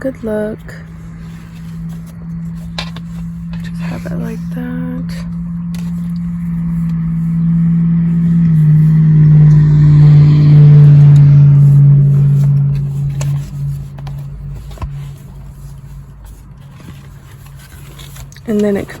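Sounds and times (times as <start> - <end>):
motor vehicle passing: 0.0 - 19.0.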